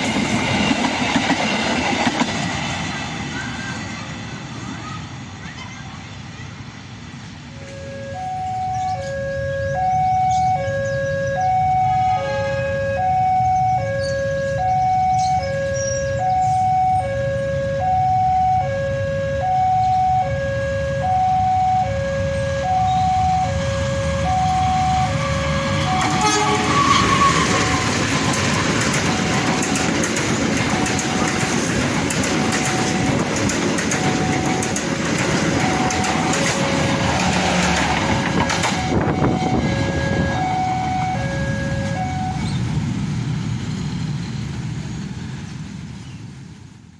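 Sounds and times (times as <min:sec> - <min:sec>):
train wheels on rails: 0:00.0 - 0:09.2, 0:22.5 - 0:46.9
diesel train passing: 0:00.0 - 0:46.9
level crossing two-tone alarm: 0:07.7 - 0:28.4, 0:30.7 - 0:31.6, 0:32.4 - 0:33.3, 0:33.9 - 0:34.9, 0:35.5 - 0:37.6, 0:38.5 - 0:42.5.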